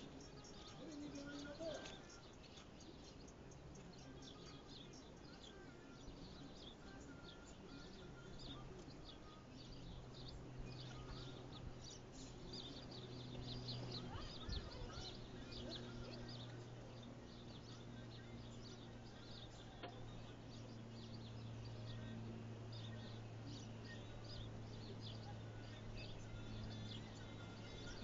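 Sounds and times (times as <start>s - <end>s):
low steady hum: 0.0s - 28.0s
small birds chirping: 0.0s - 28.0s.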